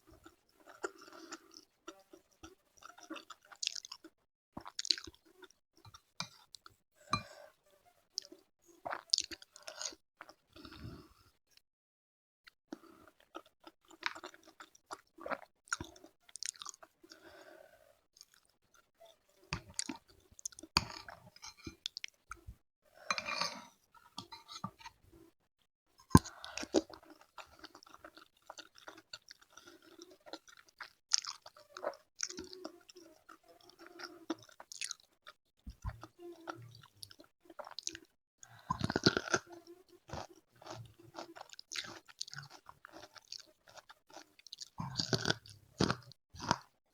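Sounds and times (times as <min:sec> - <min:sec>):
person chewing crunchy food: 0:00.2 - 0:07.3, 0:08.2 - 0:10.8, 0:12.8 - 0:17.4, 0:19.6 - 0:22.2, 0:26.1 - 0:46.7.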